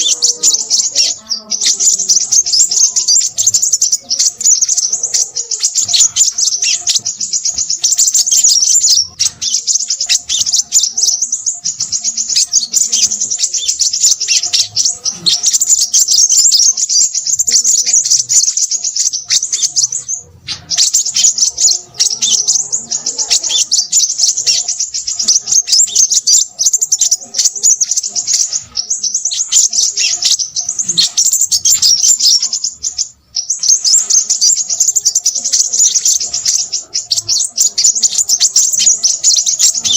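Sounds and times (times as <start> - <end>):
bird twittering chatter: 0.0 - 39.9.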